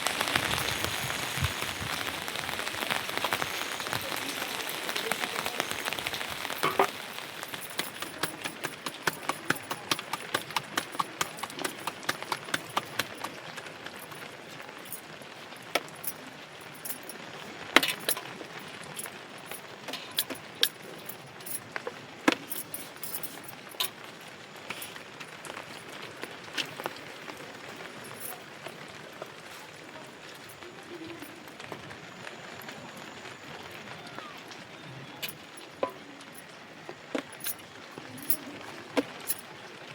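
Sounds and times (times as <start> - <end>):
faint steady hiss: 0.0 - 39.9
sharp taps and clicks: 6.0 - 13.4.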